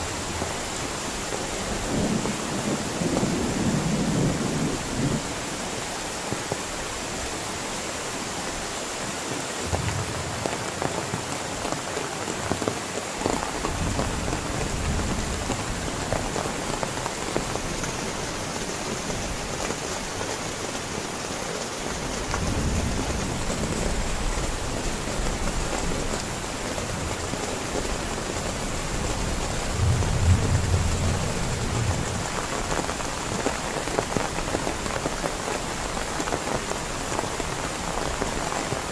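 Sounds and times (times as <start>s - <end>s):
heavy rain falling: 0.0s - 38.9s
low rumbles of thunder: 1.7s - 5.3s, 9.6s - 11.5s, 27.9s - 33.1s.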